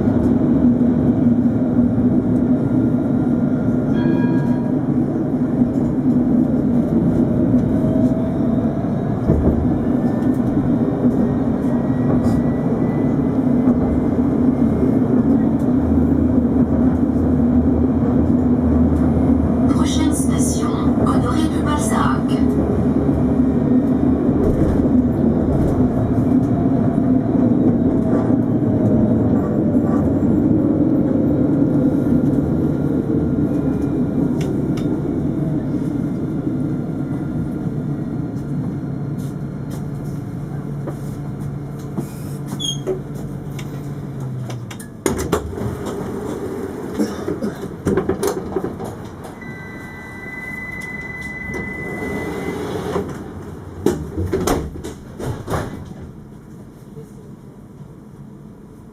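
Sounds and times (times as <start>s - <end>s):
tram slowing down: 0.0s - 58.9s
steady high beep: 49.4s - 52.6s.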